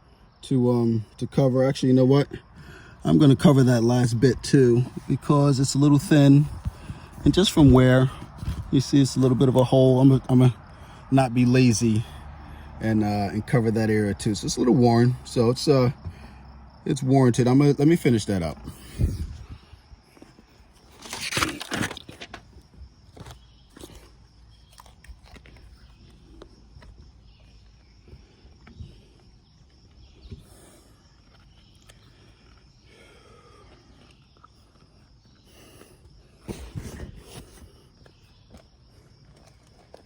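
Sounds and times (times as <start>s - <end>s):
high insect trill: 0.0s - 40.0s
tape rustling: 20.1s - 27.5s.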